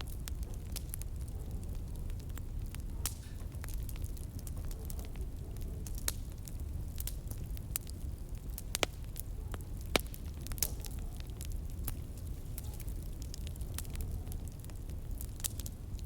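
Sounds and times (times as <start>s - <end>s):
fire crackles and pops: 0.0s - 16.0s
low rumble of flames: 0.0s - 16.0s.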